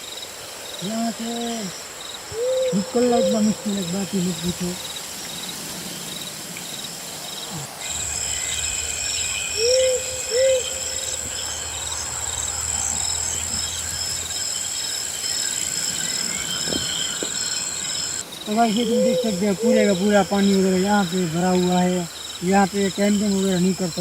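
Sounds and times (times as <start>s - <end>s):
insects chirring: 0.0s - 24.0s
short hoot-like calls: 2.3s - 4.8s, 7.5s - 14.4s, 18.7s - 20.5s.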